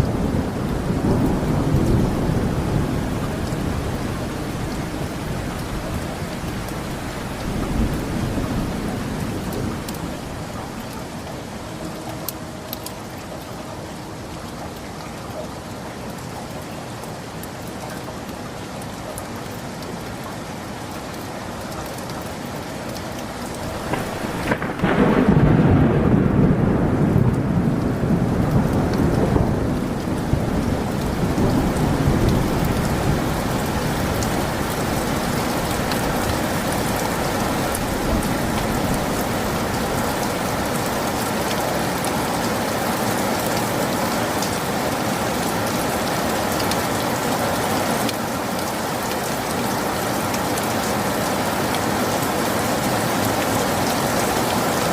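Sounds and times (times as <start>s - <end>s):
thunderclap rumbling: 0.0s - 11.1s, 23.6s - 41.2s
steady rain: 0.0s - 54.9s.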